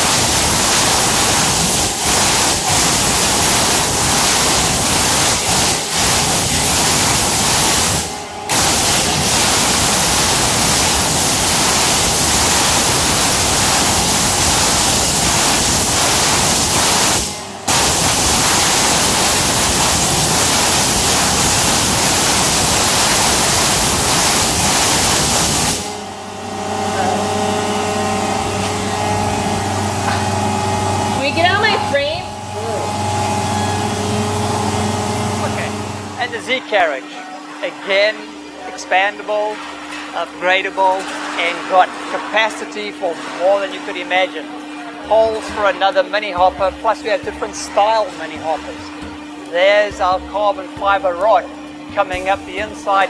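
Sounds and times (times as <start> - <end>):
high-pressure water jet hissing: 0.0 - 26.0, 52.0 - 53.0
machine hum with tones: 0.0 - 53.0.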